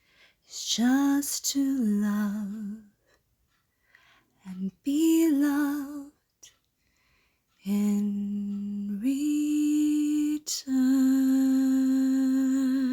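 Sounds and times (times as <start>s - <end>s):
woman singing a cappella: 0.5s - 3.0s, 4.4s - 6.2s, 7.6s - 12.9s
quick breath: 3.7s - 4.4s.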